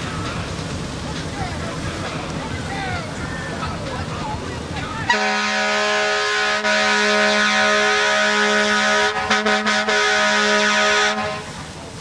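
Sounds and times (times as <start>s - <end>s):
fire truck air horn blast: 5.1s - 11.6s.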